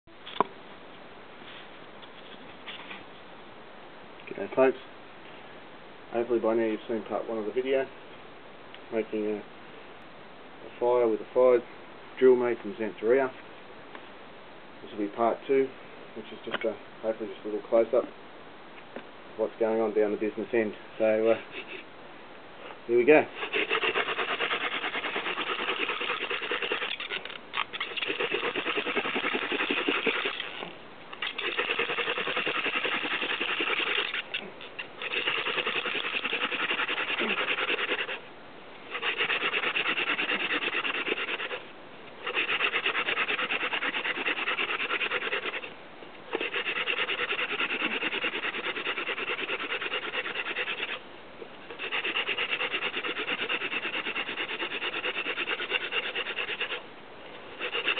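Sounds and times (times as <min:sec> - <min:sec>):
hand drill spindle grinding wood: 0:23.4 - 0:38.2, 0:38.9 - 0:41.6, 0:42.2 - 0:45.7, 0:46.3 - 0:51.0, 0:51.7 - 0:56.8, 0:57.5 - 0:57.9.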